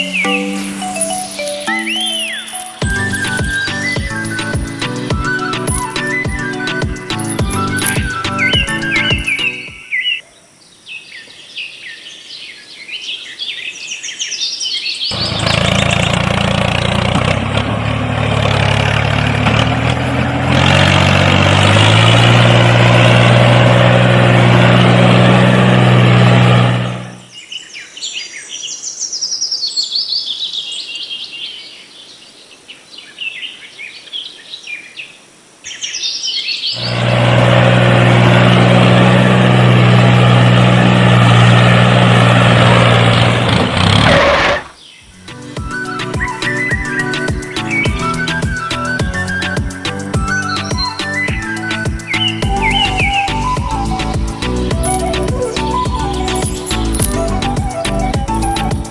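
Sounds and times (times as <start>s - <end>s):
birds chirping: 0.0s - 58.9s
small motor humming: 36.8s - 44.7s.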